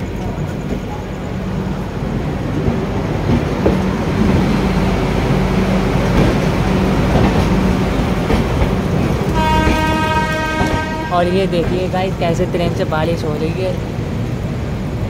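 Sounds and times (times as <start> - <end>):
train wheels clattering on rails: 0.0 - 13.9
train horn: 9.4 - 11.4.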